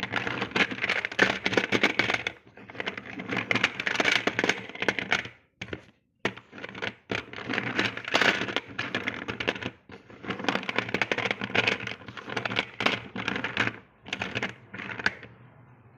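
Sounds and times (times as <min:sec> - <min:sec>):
slate pencils crunching and snapping: 0:06.4 - 0:15.3.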